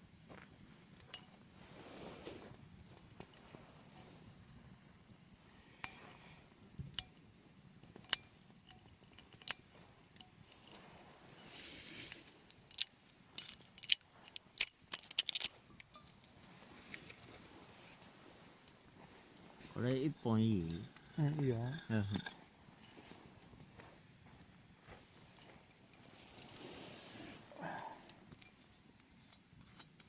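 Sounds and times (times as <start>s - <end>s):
small hard objects clicking: 12.0s - 19.0s, 20.4s - 22.4s.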